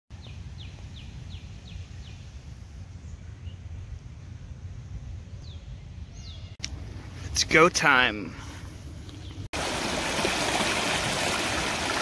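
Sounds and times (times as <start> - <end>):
bird chirping: 5.1 - 7.3.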